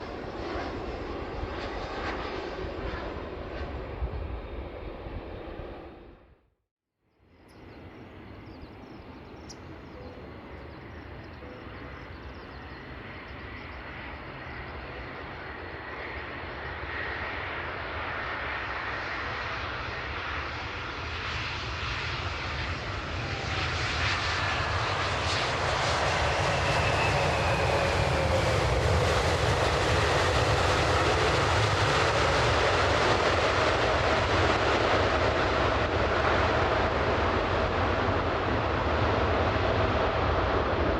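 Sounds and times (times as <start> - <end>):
jet rumble and whine: 0.0 - 6.5, 7.2 - 40.9.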